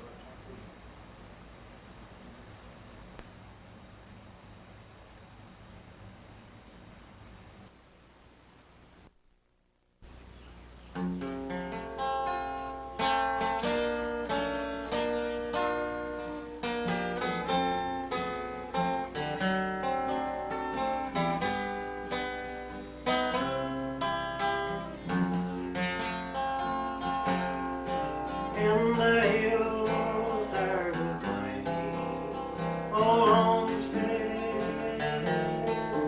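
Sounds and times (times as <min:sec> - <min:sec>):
low steady hum: 0:00.0 - 0:36.0
acoustic guitar country melody: 0:10.9 - 0:36.0.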